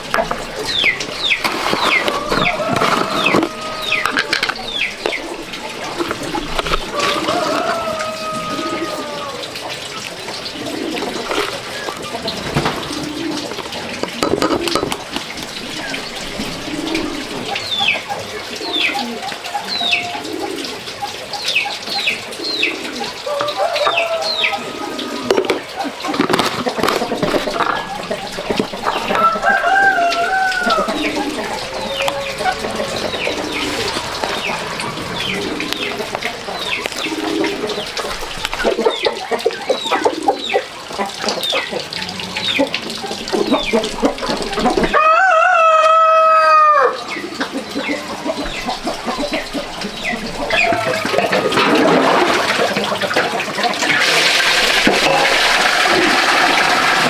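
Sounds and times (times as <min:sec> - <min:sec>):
chickens clucking: 0:00.0 - 0:57.0
running water: 0:00.0 - 0:57.0
rooster crowing: 0:02.0 - 0:04.4, 0:06.9 - 0:09.6, 0:23.2 - 0:25.4, 0:28.8 - 0:36.0, 0:44.9 - 0:47.0.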